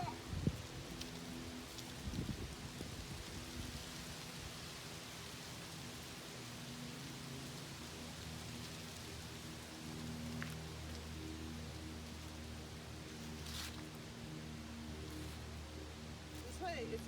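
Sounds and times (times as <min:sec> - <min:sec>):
wind rustling tree leaves: 0:00.0 - 0:17.0.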